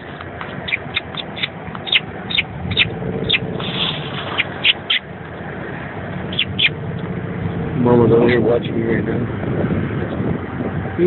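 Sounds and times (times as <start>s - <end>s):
low hum: 0.0s - 10.9s
baby birds chirping: 0.5s - 5.1s, 6.2s - 6.8s.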